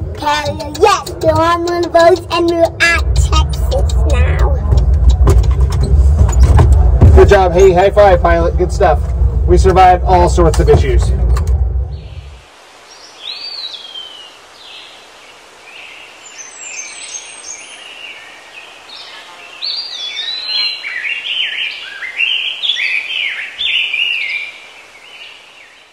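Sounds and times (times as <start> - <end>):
birds chirping and singing: 11.9 - 25.9.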